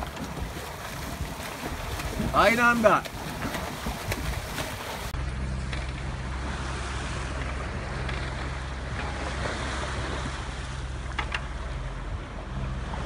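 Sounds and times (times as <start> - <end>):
water splashing past hull: 0.0 - 13.0
wind: 0.0 - 13.0
low drone: 5.1 - 13.0.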